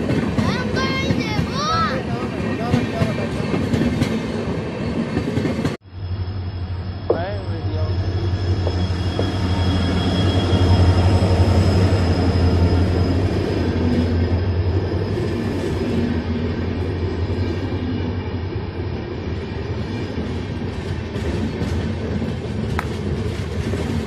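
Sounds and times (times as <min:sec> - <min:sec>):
train wheels rumbling on rail: 0:00.0 - 0:24.0
thin high whine: 0:05.8 - 0:13.3.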